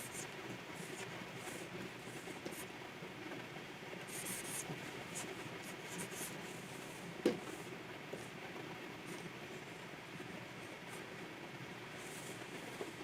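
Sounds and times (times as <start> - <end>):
stylus scratching on tablet: 0.0 - 2.7, 4.0 - 6.7.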